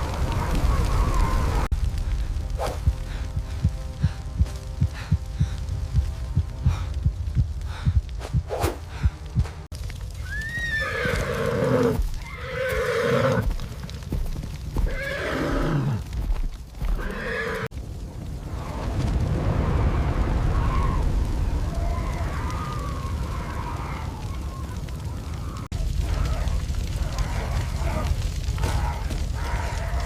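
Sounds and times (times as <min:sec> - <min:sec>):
steady low rumble: 0:00.0 - 0:10.2
horse whinnying: 0:10.2 - 0:13.4, 0:14.8 - 0:16.0, 0:16.9 - 0:17.7.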